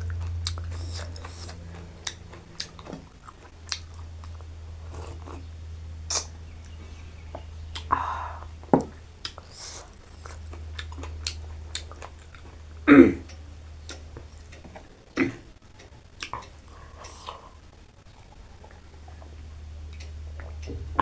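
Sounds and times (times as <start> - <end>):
wet chewing mouth smacks: 0.0 - 5.5, 7.7 - 8.0, 9.2 - 12.6
low steady hum: 0.0 - 21.0.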